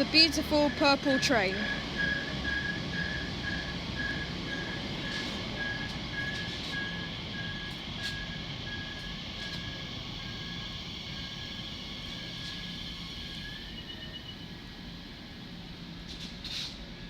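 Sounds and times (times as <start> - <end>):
low rumble of train: 0.0 - 17.0
electronic warning beeper: 0.1 - 12.5.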